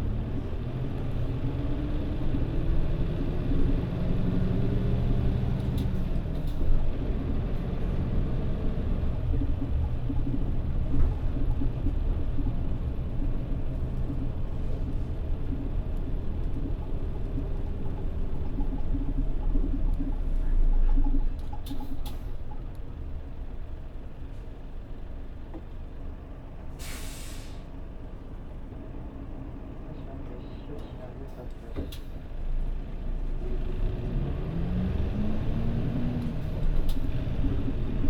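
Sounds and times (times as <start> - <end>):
bus engine running: 0.0 - 38.0
air brakes hissing: 26.8 - 27.8.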